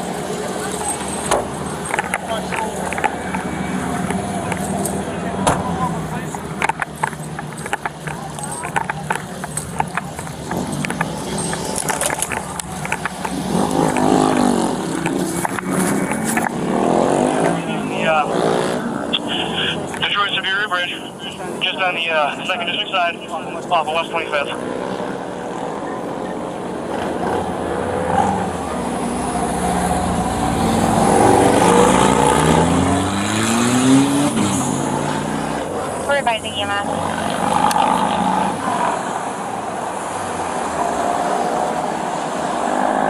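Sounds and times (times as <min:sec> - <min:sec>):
dirt bike engines revving: 0:00.0 - 0:43.0
dirt bike engine revving: 0:06.1 - 0:19.8.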